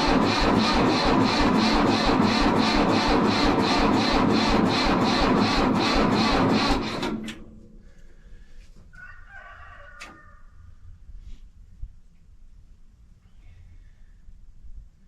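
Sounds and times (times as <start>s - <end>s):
diesel engine cranking: 0.0s - 8.0s
rooster crowing: 8.9s - 10.7s.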